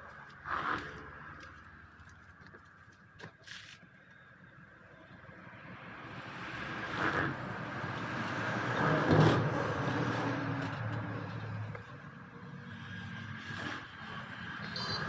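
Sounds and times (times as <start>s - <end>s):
road vehicle passing by: 5.2s - 15.0s.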